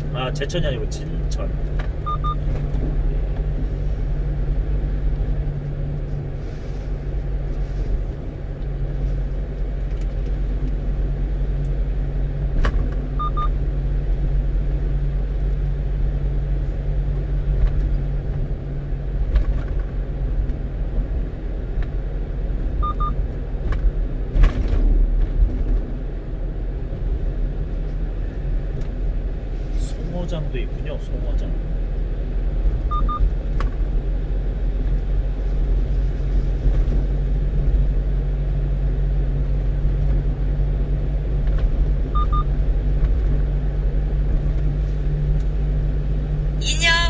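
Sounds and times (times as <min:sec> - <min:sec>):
truck engine and road noise: 0:00.0 - 0:47.0
short high double beep: 0:46.6 - 0:47.0.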